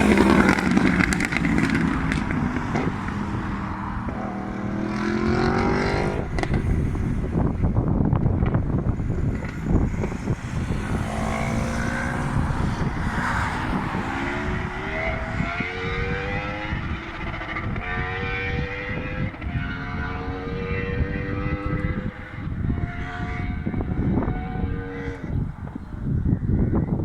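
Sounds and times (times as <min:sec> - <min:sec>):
heavy low rumble: 0:00.0 - 0:17.9
motorcycle engine accelerating: 0:00.0 - 0:27.0.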